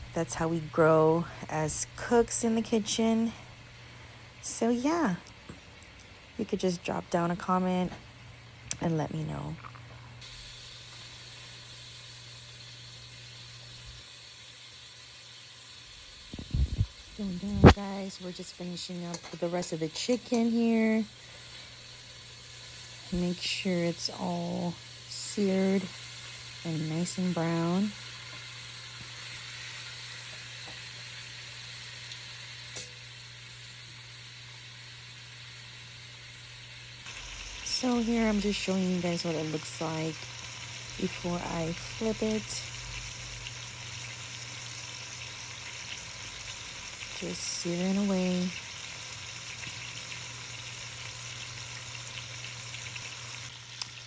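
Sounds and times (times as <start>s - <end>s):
chicken sizzling in hot oil: 10.2s - 54.0s
low hum: 15.9s - 21.4s.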